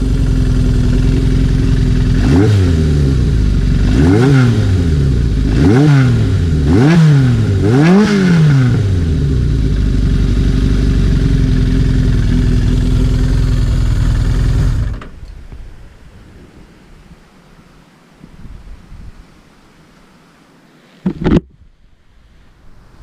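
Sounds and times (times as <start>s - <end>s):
motorcycle engine idling: 0.0s - 5.5s, 8.9s - 15.2s
motorcycle engine revving: 0.0s - 15.2s.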